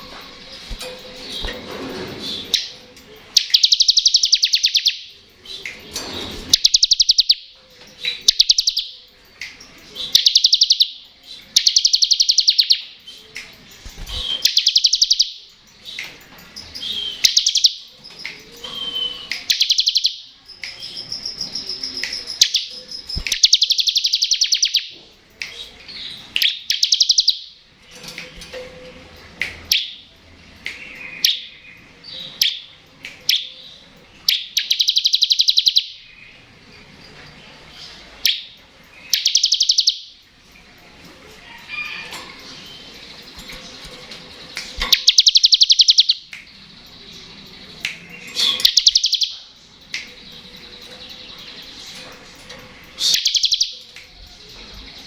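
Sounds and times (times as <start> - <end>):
bird chips: 0.0 - 55.0
bird buzzy trills: 41.5 - 55.0.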